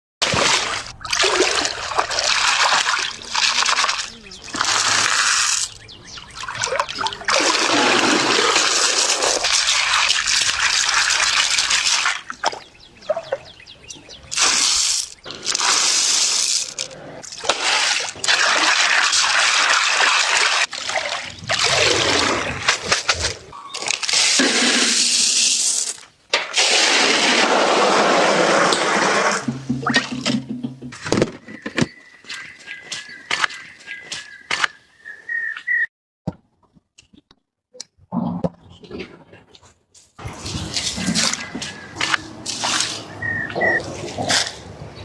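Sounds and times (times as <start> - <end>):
water splashing and sloshing: 0.2 - 34.8, 39.6 - 45.0.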